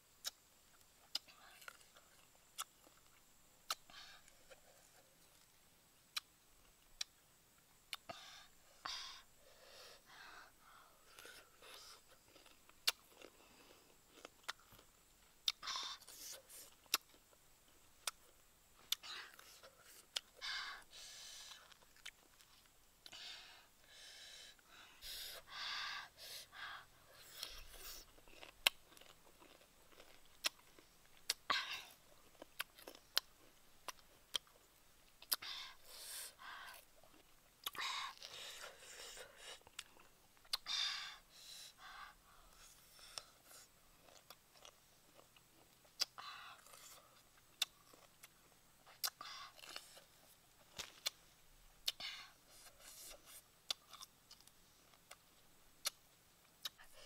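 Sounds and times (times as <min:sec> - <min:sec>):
person biting and chewing: 0:03.7 - 0:04.6, 0:11.2 - 0:13.4, 0:27.2 - 0:34.6, 0:45.6 - 0:51.2, 0:53.7 - 0:54.5.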